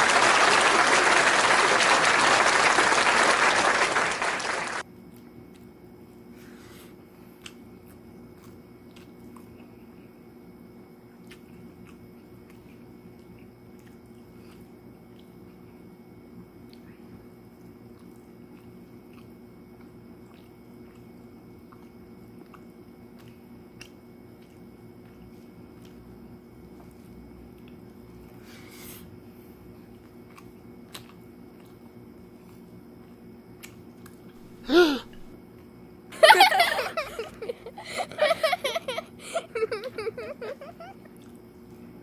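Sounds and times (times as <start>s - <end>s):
steady low hum: 0.0s - 42.0s
faint chewing with small clicks: 4.9s - 34.4s, 35.5s - 36.0s, 40.6s - 42.0s.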